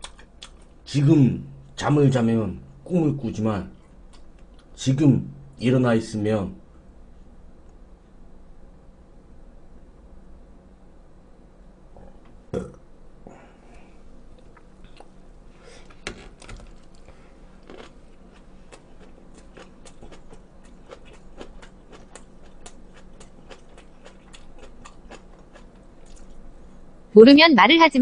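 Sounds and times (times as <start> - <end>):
wet chewing clicks: 0.0 - 0.8, 16.4 - 26.4.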